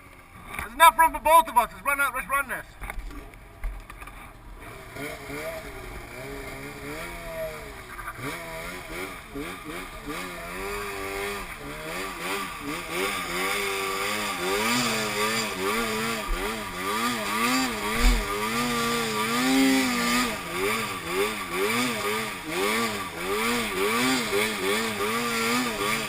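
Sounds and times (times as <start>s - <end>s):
snowmobile engine revving: 0.0s - 2.8s, 4.4s - 26.0s
short low thump: 18.0s - 18.3s.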